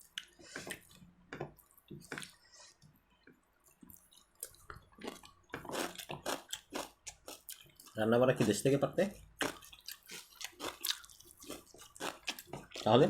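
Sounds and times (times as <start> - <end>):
wet chewing: 3.6 - 8.6, 9.2 - 13.0.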